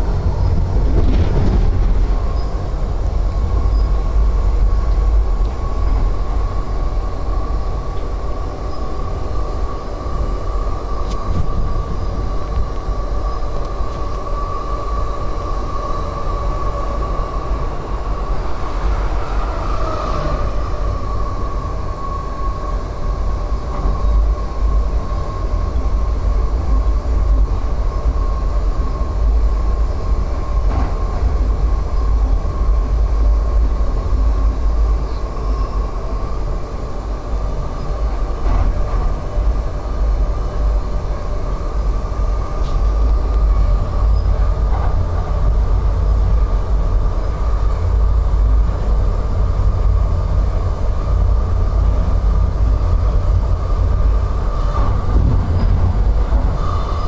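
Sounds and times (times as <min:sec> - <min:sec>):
passenger train rumbling: 0:00.0 - 0:57.0
steady whine: 0:00.0 - 0:57.0.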